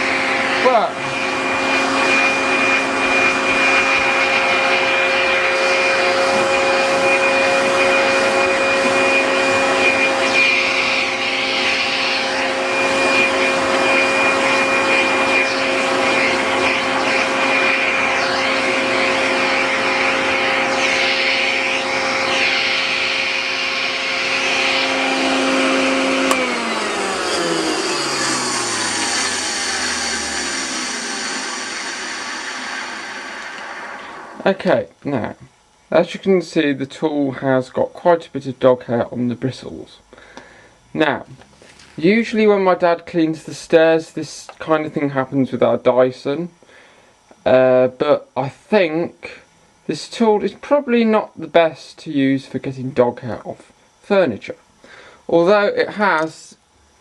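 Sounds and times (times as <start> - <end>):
vacuum cleaner motor whine: 0.0 - 34.8.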